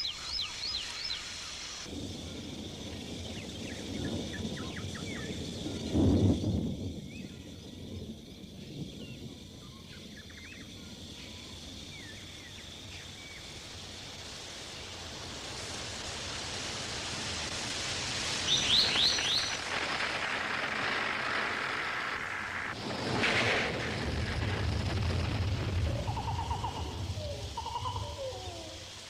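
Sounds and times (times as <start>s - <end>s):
high insect hum: 0.0s - 29.0s
loud low crash: 19.4s - 26.3s.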